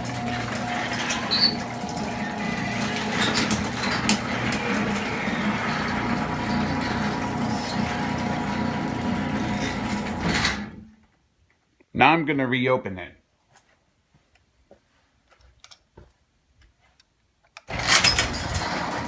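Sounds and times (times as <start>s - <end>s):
door rattling in track: 0.0s - 10.9s, 17.7s - 19.0s
garage door opener motor hum: 0.0s - 11.0s, 17.7s - 19.0s.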